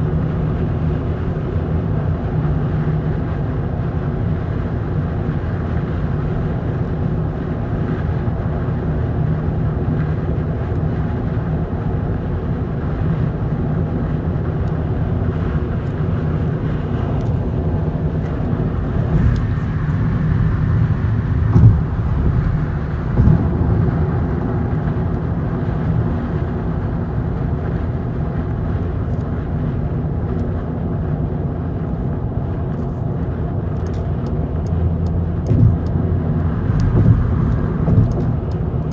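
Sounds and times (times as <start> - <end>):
wind and road noise in car: 0.0 - 38.9
bumps: 21.4 - 23.8.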